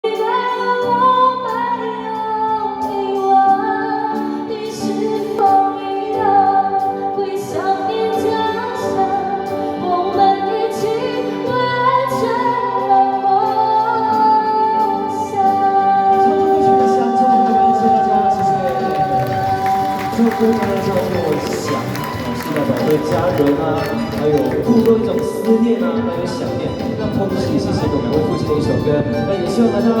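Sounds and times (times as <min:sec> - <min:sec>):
instrumental accompaniment: 0:00.0 - 0:30.0.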